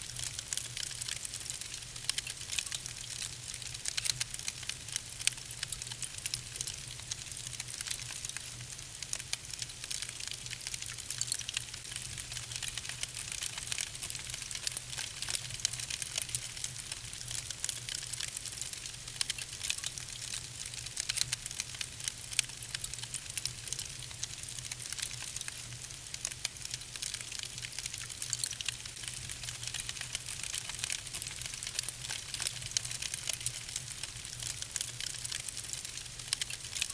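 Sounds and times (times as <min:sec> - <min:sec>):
wood fire crackling: 0:00.1 - 0:36.9.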